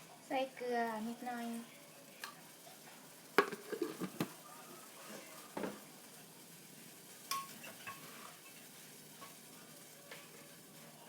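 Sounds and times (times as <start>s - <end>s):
spoon knocking cooking pot: 3.4s - 4.4s.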